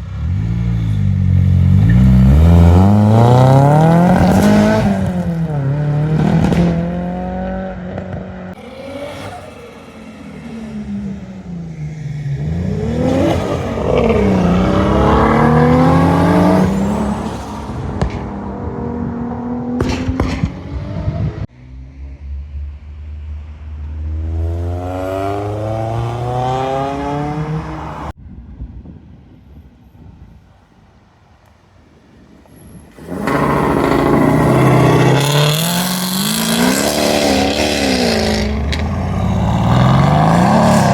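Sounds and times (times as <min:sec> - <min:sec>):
car engines revving and accelerating: 0:00.0 - 0:28.2, 0:32.6 - 0:40.9
sharp exhaust cracks: 0:32.8 - 0:40.9.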